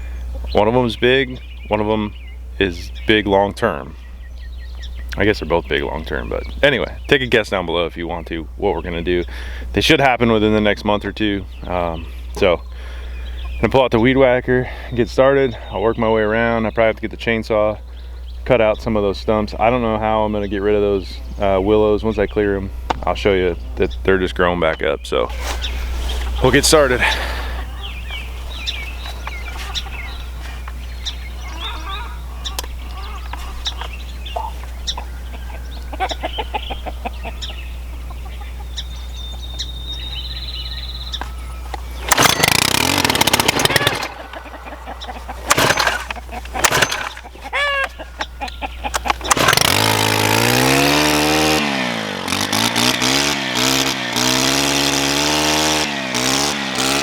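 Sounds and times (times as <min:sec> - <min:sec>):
birds calling: 0:00.0 - 0:57.0
chickens clucking: 0:10.6 - 0:17.7, 0:18.8 - 0:39.7, 0:42.9 - 0:49.7
string trimmer engine starting: 0:25.3 - 0:30.9, 0:41.7 - 0:47.9, 0:48.9 - 0:57.0.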